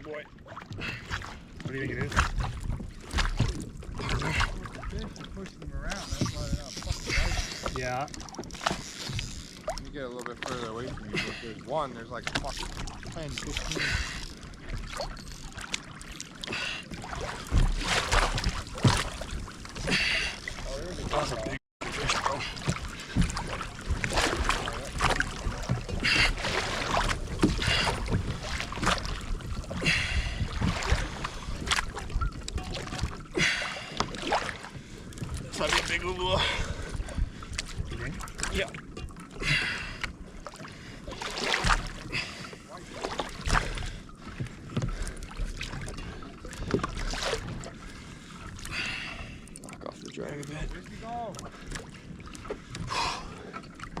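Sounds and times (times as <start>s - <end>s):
water splashing around kayak: 0.0s - 54.0s
wind rumbling on microphone: 22.4s - 33.3s.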